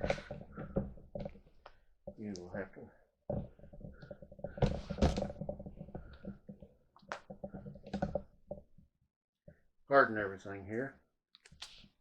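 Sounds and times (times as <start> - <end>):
rubbing and crackling handling noise: 3.3 - 8.7.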